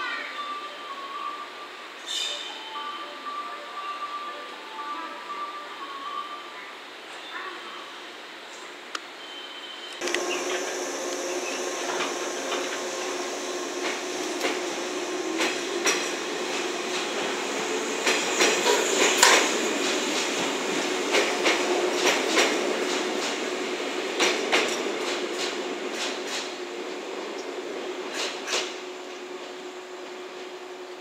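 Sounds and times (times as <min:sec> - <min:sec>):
steady hum: 0:10.0 - 0:17.9
train wheels clacking over rail joints: 0:10.0 - 0:23.5, 0:24.1 - 0:26.6, 0:28.1 - 0:29.6.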